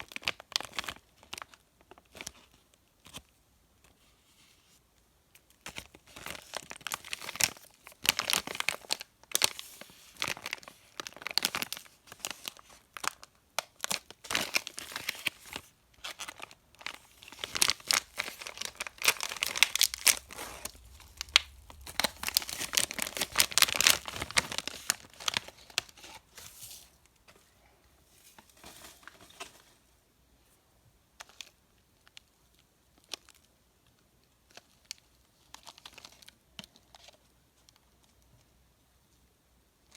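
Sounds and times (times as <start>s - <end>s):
candy wrappers crinkling: 5.6s - 27.0s, 31.2s - 33.5s, 34.5s - 37.2s.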